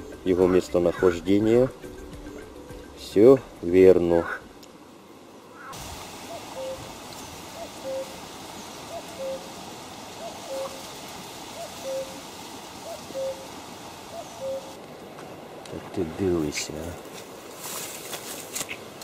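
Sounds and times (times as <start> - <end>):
bird two-note hooting call: 5.6 - 6.9, 7.6 - 8.2.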